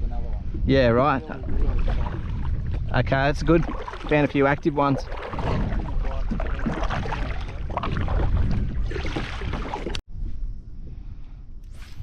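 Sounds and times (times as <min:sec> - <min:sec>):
water around a kayak: 0:00.0 - 0:10.0
wind rumble on microphone: 0:00.0 - 0:12.0.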